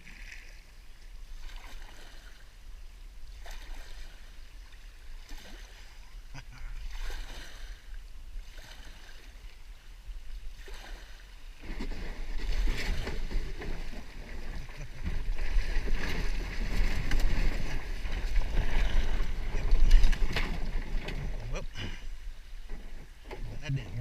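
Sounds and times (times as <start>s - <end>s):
kayak paddle splashing: 0.0s - 24.0s
kayak knocking: 11.6s - 24.0s.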